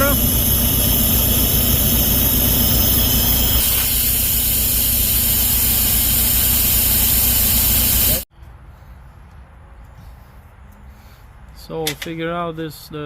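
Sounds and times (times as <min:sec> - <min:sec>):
compressed air hissing: 0:00.0 - 0:08.2
diesel truck engine running: 0:00.0 - 0:08.2
high whine: 0:00.0 - 0:08.3.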